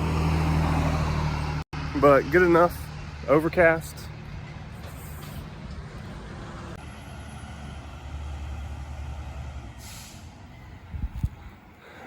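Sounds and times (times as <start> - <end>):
garbage truck diesel engine: 0.0 - 12.0
air brakes hissing: 4.7 - 5.6, 9.7 - 12.0.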